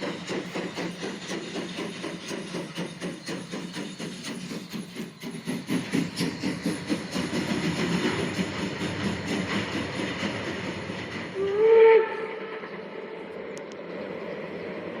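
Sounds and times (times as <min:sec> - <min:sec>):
model steam train chuffing: 0:00.0 - 0:15.0
steam train whistle: 0:11.4 - 0:13.2.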